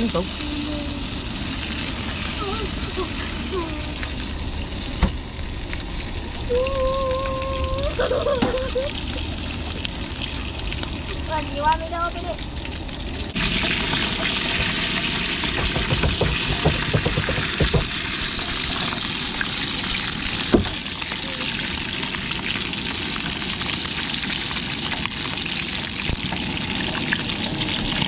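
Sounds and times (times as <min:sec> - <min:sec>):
sausages sizzling in a pan: 0:00.0 - 0:28.0
low knocks: 0:15.6 - 0:17.9.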